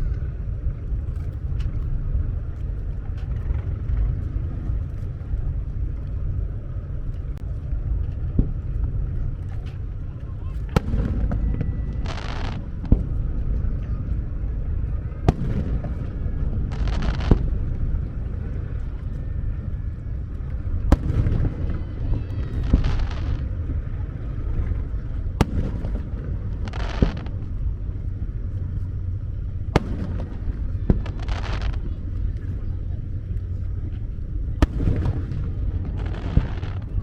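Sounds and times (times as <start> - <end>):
crackling hiss of fireworks: 0.0 - 37.0
steady low rumble: 0.0 - 37.0
fireworks bangs: 10.4 - 37.0.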